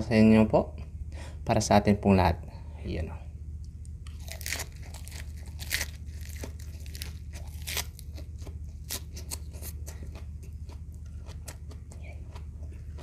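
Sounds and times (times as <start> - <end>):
steady low hum: 0.0 - 13.0
crunchy food being chewed: 4.0 - 13.0.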